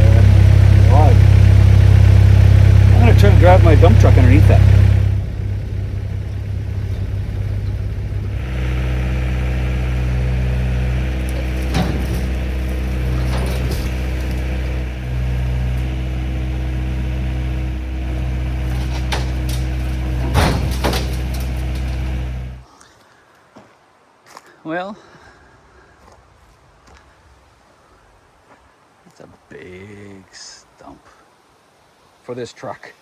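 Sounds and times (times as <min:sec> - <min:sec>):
knocks and clunks: 0:00.0 - 0:22.6
truck engine running: 0:00.0 - 0:22.6.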